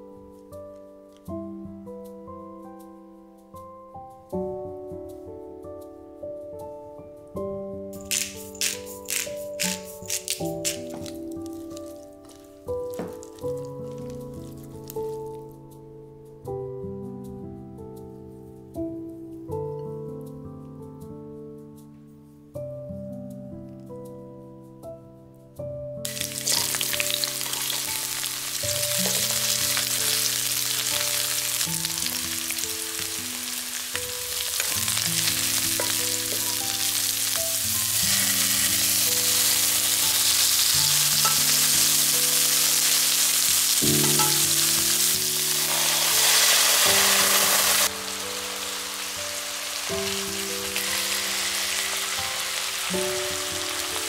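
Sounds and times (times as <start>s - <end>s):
food sizzling in oil: 8.0s - 15.4s, 26.1s - 54.0s.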